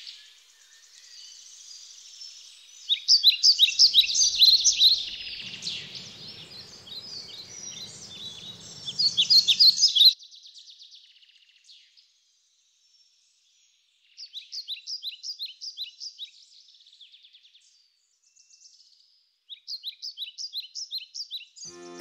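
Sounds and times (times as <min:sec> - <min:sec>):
songbird chirping rapidly: 0:02.2 - 0:10.2.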